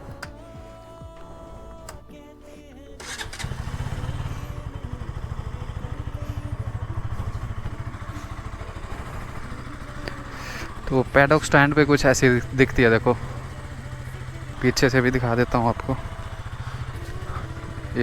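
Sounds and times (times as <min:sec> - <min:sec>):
motorcycle engine starting and idling: 0:00.0 - 0:18.0.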